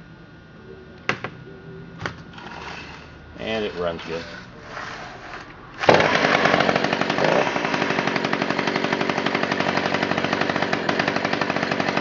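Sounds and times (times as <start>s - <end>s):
chainsaw engine running: 5.8s - 12.0s.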